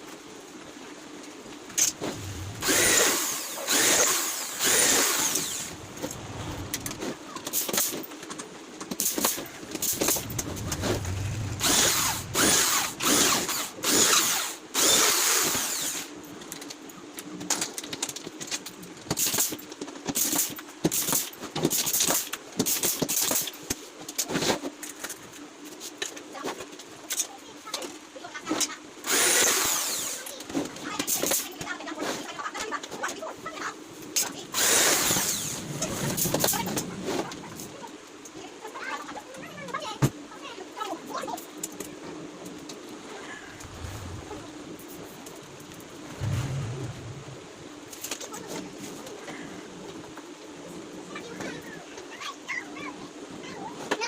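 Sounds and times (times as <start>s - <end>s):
power drill bursts: 2.2s - 5.8s, 10.1s - 16.1s, 29.1s - 30.2s, 34.6s - 35.6s.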